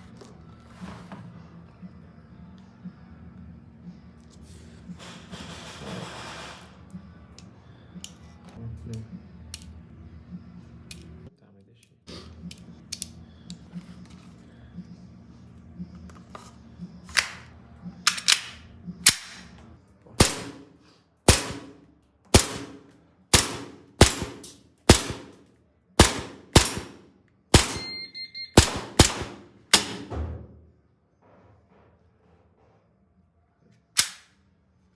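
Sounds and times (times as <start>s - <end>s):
airsoft pistol shots: 20.2s - 20.7s, 21.3s - 25.4s, 26.0s - 27.0s, 27.6s - 28.0s, 28.6s - 30.2s, 34.0s - 34.3s.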